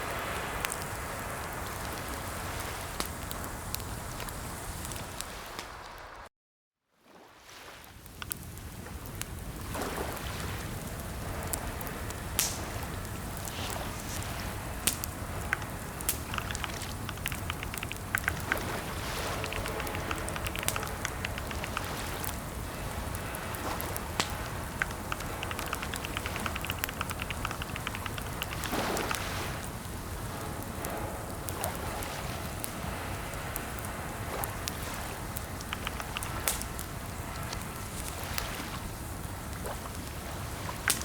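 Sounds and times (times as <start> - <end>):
steady hiss: 0.0 - 6.2, 8.1 - 41.0
keyboard typing: 15.4 - 22.4, 23.0 - 29.2, 35.6 - 36.7.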